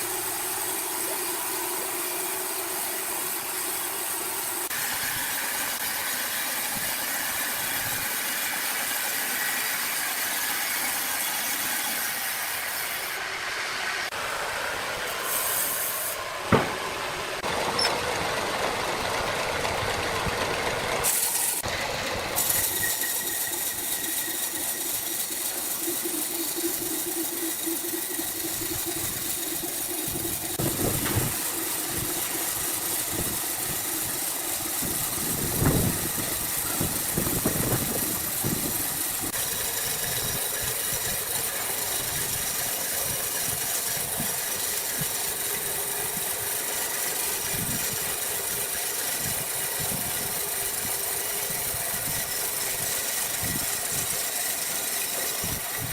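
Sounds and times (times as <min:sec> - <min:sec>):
sawmill machinery humming: 0:00.0 - 0:55.9
heavy thuds: 0:16.5 - 0:16.8.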